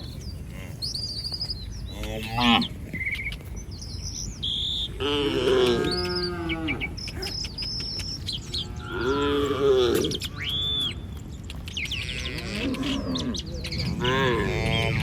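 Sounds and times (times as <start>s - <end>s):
small birds chirping: 0.0s - 15.0s
cattle mooing: 1.9s - 2.8s, 5.0s - 7.3s, 8.5s - 10.5s, 12.0s - 15.0s.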